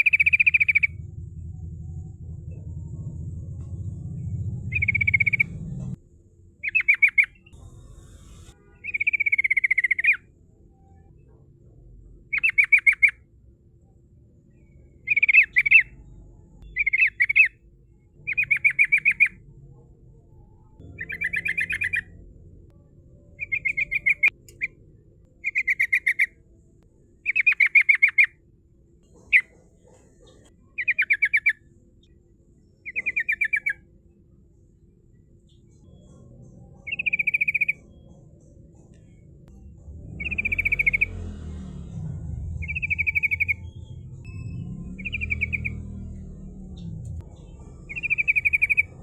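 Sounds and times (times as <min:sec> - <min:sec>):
bulbul singing: 0:00.0 - 0:06.0, 0:06.6 - 0:10.3, 0:12.3 - 0:13.2, 0:14.5 - 0:17.6, 0:18.2 - 0:19.4, 0:20.4 - 0:26.4, 0:32.7 - 0:33.8, 0:35.5 - 0:49.0.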